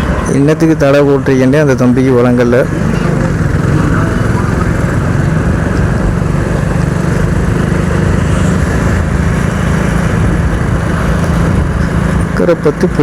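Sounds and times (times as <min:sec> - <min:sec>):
motorcycle engine rumbling: 0:00.0 - 0:13.0
road noise: 0:00.0 - 0:13.0.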